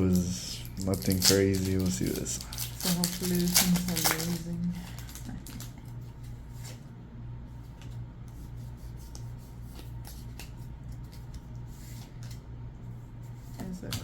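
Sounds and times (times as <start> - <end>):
steady low hum: 0.0 - 14.0
trading cards sliding and rustling: 7.6 - 12.4.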